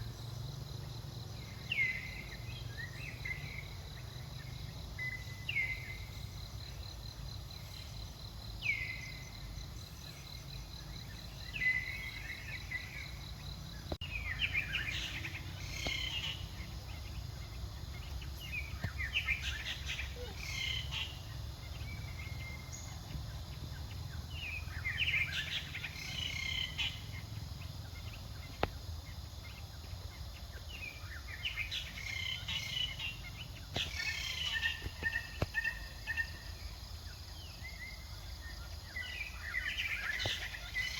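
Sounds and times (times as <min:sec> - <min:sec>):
high chirping animal calls: 0:18.6 - 0:23.1.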